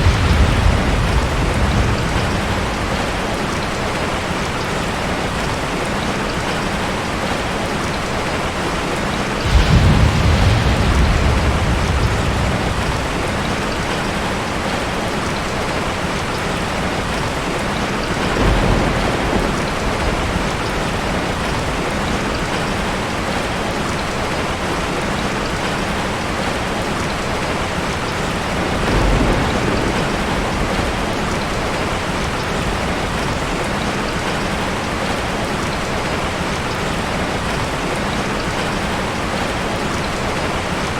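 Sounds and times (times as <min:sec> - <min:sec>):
thunder rolling: 0:00.0 - 0:04.2, 0:09.4 - 0:14.9, 0:18.0 - 0:22.6, 0:28.5 - 0:33.6
heavy rain: 0:00.0 - 0:40.9.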